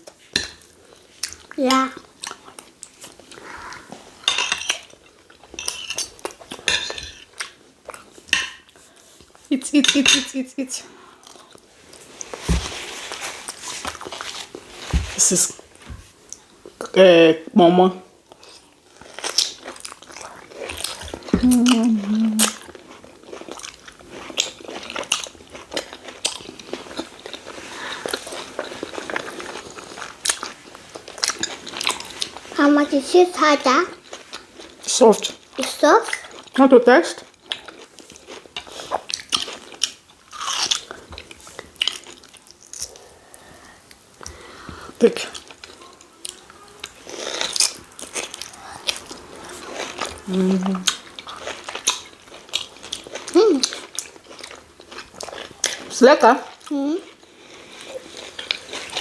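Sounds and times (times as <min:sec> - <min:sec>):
close chewing and mouth clicks: 0:00.0 - 0:09.4, 0:13.1 - 0:14.9, 0:18.2 - 0:32.6, 0:33.9 - 0:59.0
metal spoons clinking on plates: 0:04.3 - 0:05.0, 0:05.6 - 0:07.3.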